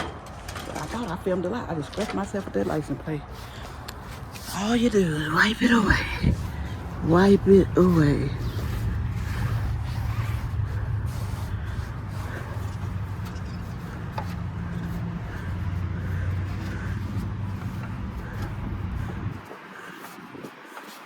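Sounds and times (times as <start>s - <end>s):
towel rubbing car wheel: 2.6s - 21.0s
steady low hum: 3.5s - 19.5s.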